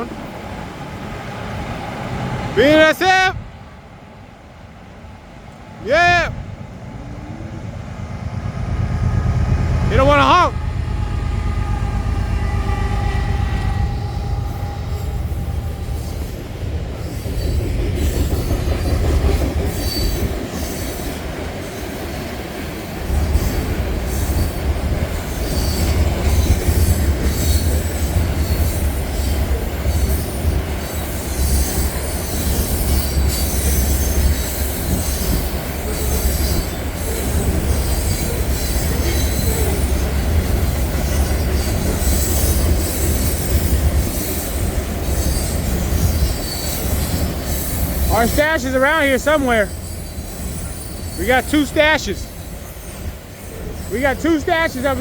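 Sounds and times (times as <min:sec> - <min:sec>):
train rumbling past: 0:00.0 - 0:55.0
wheels clattering on rails: 0:13.7 - 0:55.0.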